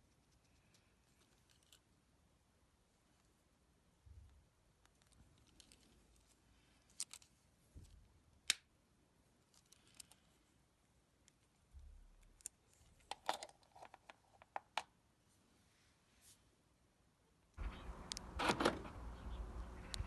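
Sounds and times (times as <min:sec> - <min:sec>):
small handling noises: 0:00.0 - 0:02.2, 0:02.8 - 0:16.6.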